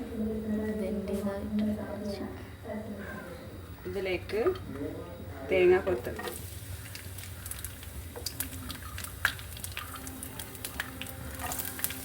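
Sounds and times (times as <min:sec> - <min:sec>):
frying crackles and pops: 0:06.0 - 0:12.0.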